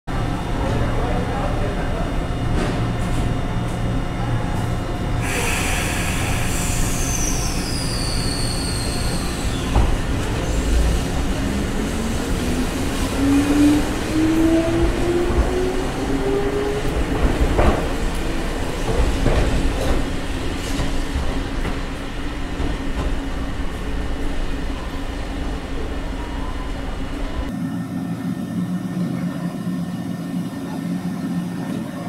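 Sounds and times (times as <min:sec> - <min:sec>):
electric railcar rumble: 0:00.1 - 0:32.0
high wheel squeal: 0:05.2 - 0:10.6.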